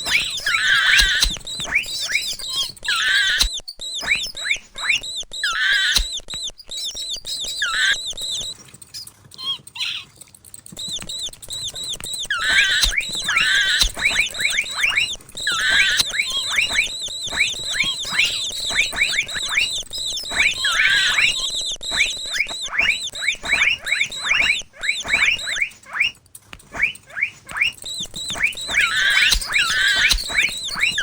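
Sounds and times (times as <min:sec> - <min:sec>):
mouse squeaking: 0:00.0 - 0:31.0.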